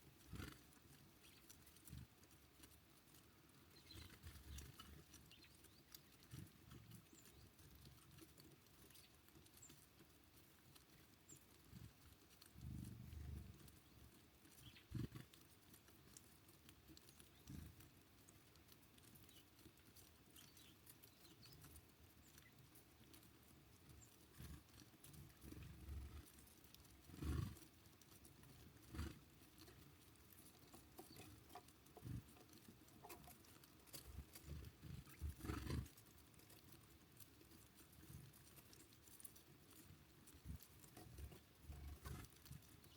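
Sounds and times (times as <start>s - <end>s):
birds pecking and hopping: 0.0s - 42.9s.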